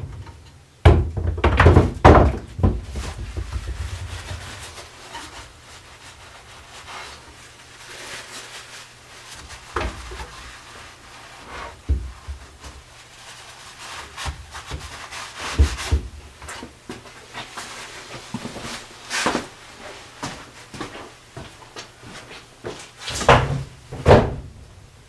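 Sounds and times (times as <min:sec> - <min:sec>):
heavy knocks on wood: 0:00.0 - 0:03.8, 0:23.3 - 0:24.6.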